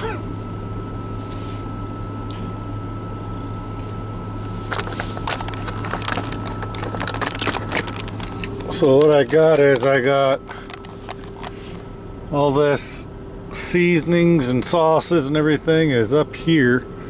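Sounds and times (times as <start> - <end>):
low mechanical hum: 0.0 - 17.0
bottles clicking and rattling: 4.5 - 11.9.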